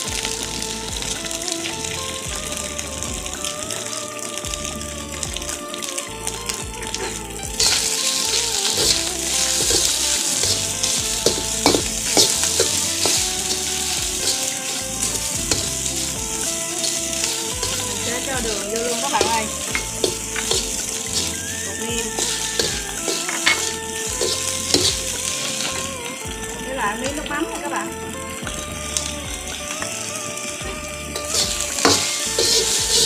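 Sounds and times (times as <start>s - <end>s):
rice sizzling in a wok: 0.0s - 33.0s
metal ladle scraping a wok: 6.8s - 26.2s, 29.8s - 33.0s.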